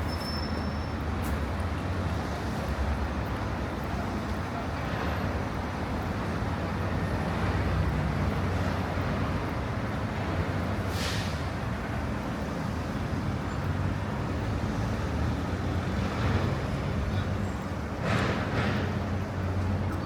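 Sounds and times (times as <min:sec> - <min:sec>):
city traffic rumble: 0:00.0 - 0:20.0.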